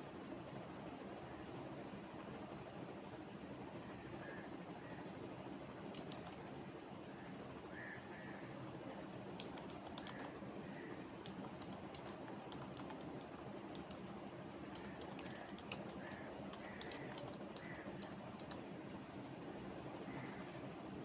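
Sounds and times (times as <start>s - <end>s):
low background hum: 0.0s - 21.0s
keyboard key clicks: 6.0s - 6.5s, 9.4s - 10.4s, 11.2s - 18.6s.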